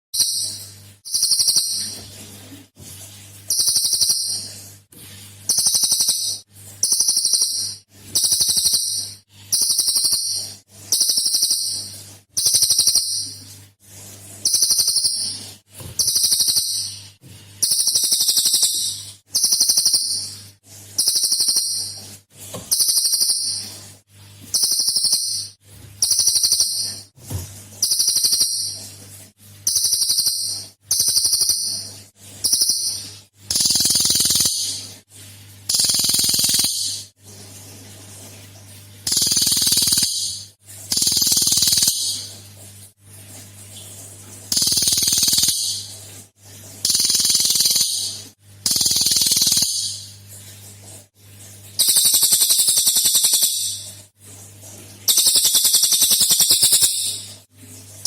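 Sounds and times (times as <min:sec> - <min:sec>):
songbird high rapid call: 0:51.8 - 0:53.7.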